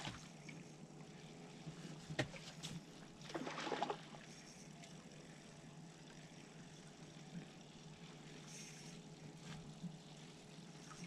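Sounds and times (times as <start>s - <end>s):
faint water lapping: 2.4s - 11.0s
splashing rustle: 3.2s - 4.2s.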